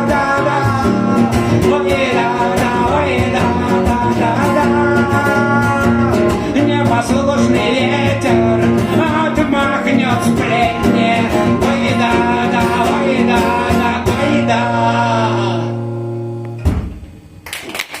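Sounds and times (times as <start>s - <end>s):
man singing wordlessly: 0.0s - 15.8s
acoustic guitar strumming: 0.0s - 17.0s
sharp thump: 16.6s - 17.1s.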